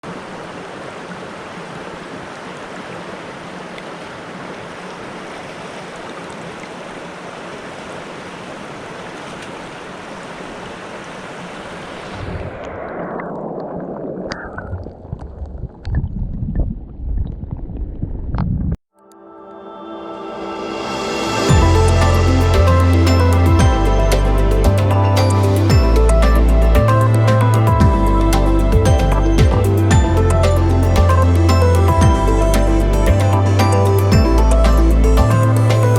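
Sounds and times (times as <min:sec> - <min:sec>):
stream water rushing: 0:00.0 - 0:12.6, 0:20.1 - 0:35.9
muffled low rumble: 0:20.8 - 0:25.1, 0:25.7 - 0:33.5.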